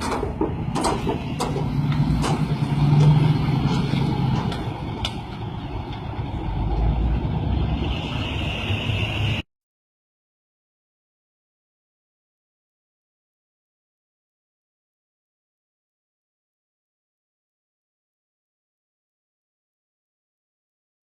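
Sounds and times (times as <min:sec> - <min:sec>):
sharp knocks or clatters: 0:00.0 - 0:05.2
truck engine rumbling: 0:00.0 - 0:09.5.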